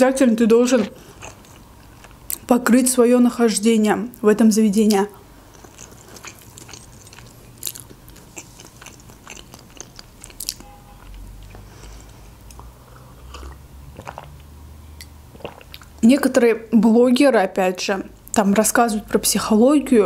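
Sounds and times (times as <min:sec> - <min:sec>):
chewing with wet mouth clicks: 0:00.8 - 0:02.5, 0:04.9 - 0:14.5, 0:15.3 - 0:16.0.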